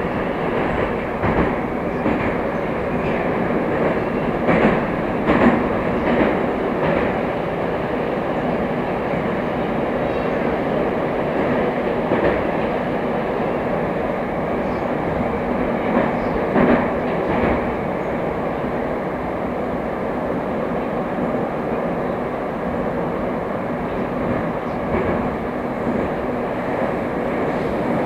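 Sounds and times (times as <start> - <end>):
train wheels rumbling: 0.0 - 28.0
rail-joint clacks: 0.5 - 7.3, 11.4 - 12.8, 15.6 - 17.8, 23.9 - 28.0.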